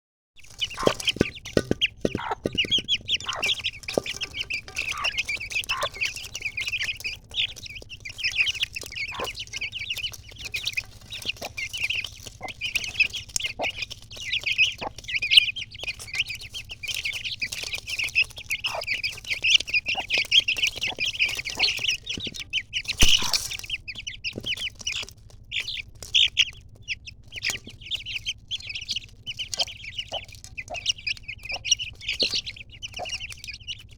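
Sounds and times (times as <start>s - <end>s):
chicks peeping: 0.4s - 33.9s.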